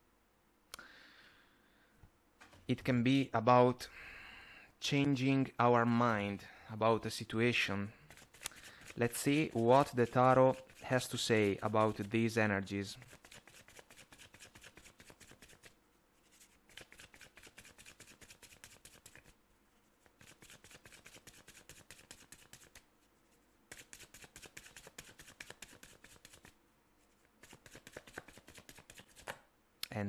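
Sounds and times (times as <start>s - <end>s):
cards being shuffled: 8.1s - 12.2s, 13.0s - 19.4s, 20.0s - 22.9s, 23.7s - 29.4s.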